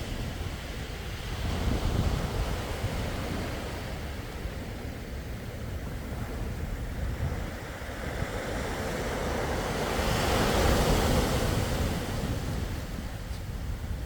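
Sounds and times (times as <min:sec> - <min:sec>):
low wind rumble on microphone: 0:00.0 - 0:14.0
sea waves breaking on shore: 0:00.0 - 0:14.0.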